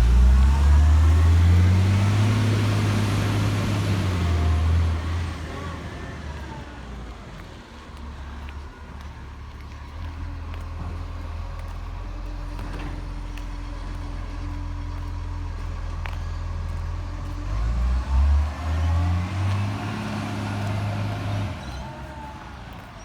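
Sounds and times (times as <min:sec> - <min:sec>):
garbage truck engine revving: 0:00.0 - 0:06.6, 0:16.8 - 0:22.9.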